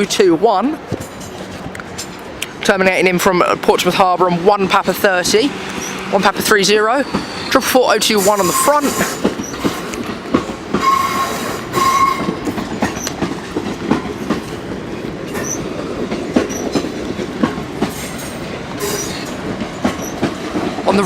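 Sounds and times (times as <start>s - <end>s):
train rumble: 0.0s - 21.0s
train wheels clicking over rail joints: 0.0s - 21.0s
wheel squeals: 5.7s - 10.0s, 10.8s - 13.2s, 15.4s - 15.7s, 18.0s - 20.3s.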